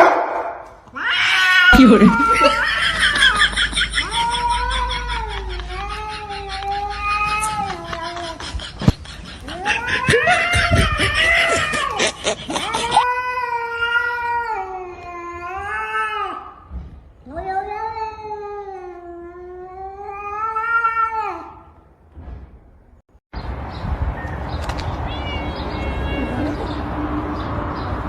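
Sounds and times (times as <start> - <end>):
cat yowling: 0.9 - 8.4, 9.4 - 16.6, 17.3 - 21.7, 25.0 - 26.8.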